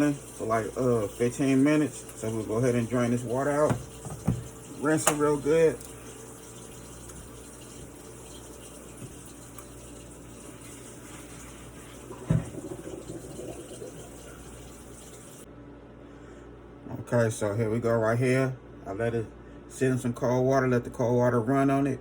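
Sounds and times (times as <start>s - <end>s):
tap water rushing into sink: 0.0s - 15.4s.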